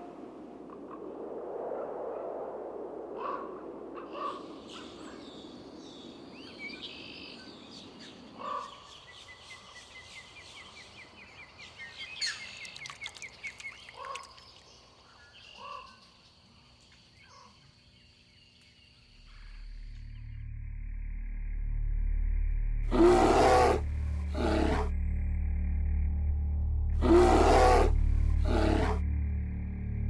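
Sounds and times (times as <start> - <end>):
low rushing noise: 0.0 - 8.4
low bird calls: 3.2 - 16.2
small birds chirping and trilling: 4.1 - 19.6.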